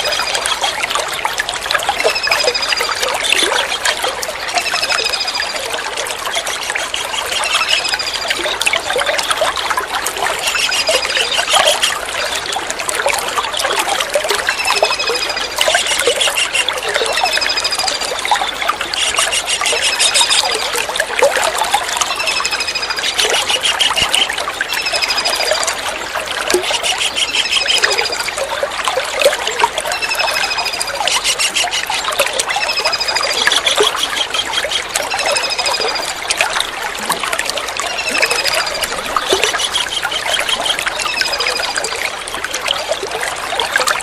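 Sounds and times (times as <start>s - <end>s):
trickling running water: 0.0s - 44.0s
kingfisher whistling calls: 14.5s - 20.6s, 26.6s - 28.3s, 29.9s - 35.9s.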